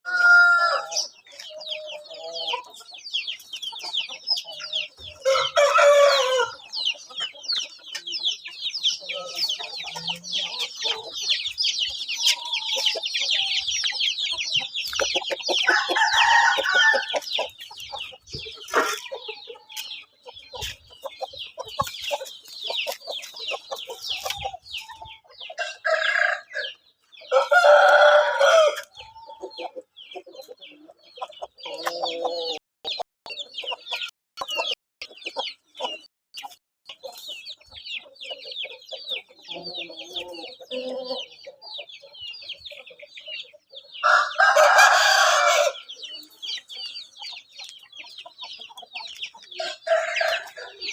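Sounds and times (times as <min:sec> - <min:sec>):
rooster crowing: 0:00.1 - 0:00.9, 0:05.2 - 0:06.6, 0:15.7 - 0:17.2, 0:27.3 - 0:28.9, 0:44.0 - 0:45.8, 0:49.6 - 0:50.9
chicken clucking: 0:00.1 - 0:50.9.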